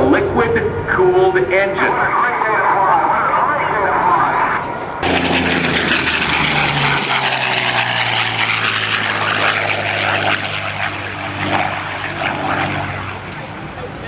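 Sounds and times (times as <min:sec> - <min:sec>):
plane engine flying past: 0:00.0 - 0:14.0.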